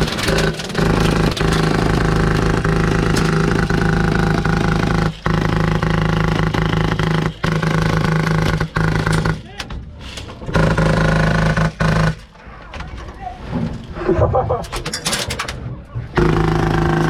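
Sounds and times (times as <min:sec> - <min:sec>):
airsoft machine gun firing: 0:00.0 - 0:09.6, 0:10.5 - 0:12.2, 0:16.2 - 0:17.0.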